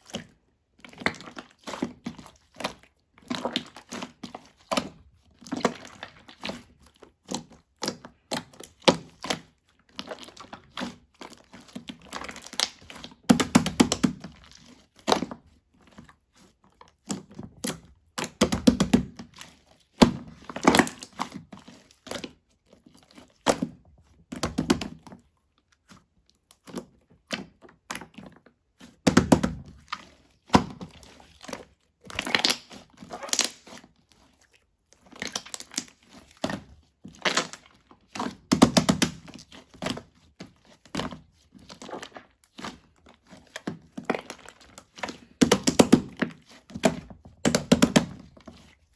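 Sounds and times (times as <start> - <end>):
slime squishing and popping: 0.0 - 15.5, 16.9 - 21.4, 26.5 - 33.9, 35.0 - 40.0.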